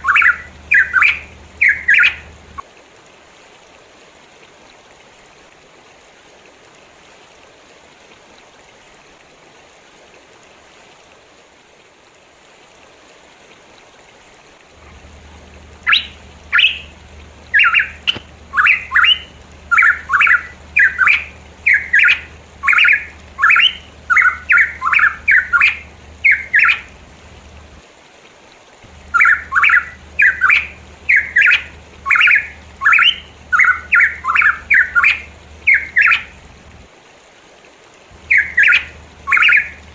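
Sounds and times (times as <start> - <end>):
bird calling harsh notes: 0.0 - 2.6, 14.8 - 27.0, 28.9 - 36.6, 38.2 - 39.9
faint hiss: 0.0 - 39.9.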